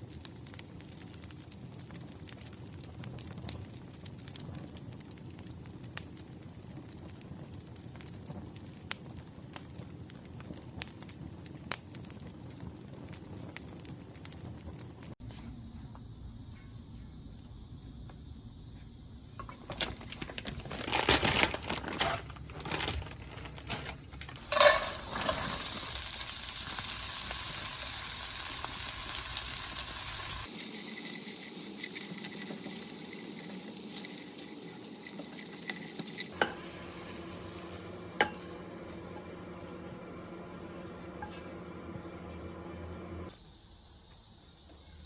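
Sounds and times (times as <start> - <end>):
pan and utensils clattering: 19.4 - 26.8, 30.5 - 39.9, 40.6 - 41.7
food sizzling in a pan: 24.3 - 44.6.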